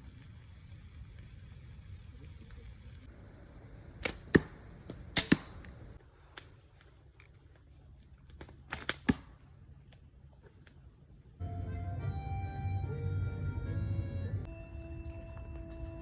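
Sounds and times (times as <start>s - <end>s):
arrow hitting target: 4.0s - 5.8s
bowstring releasing: 4.0s - 5.8s.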